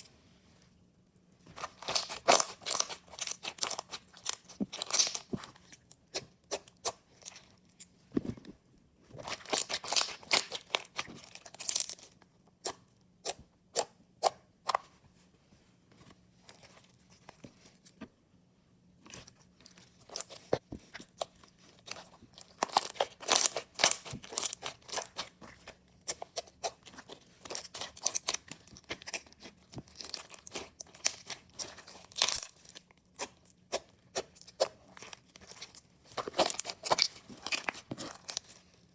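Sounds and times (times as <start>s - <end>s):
slime crackling and popping: 1.6s - 5.3s, 9.3s - 12.0s, 22.4s - 25.4s.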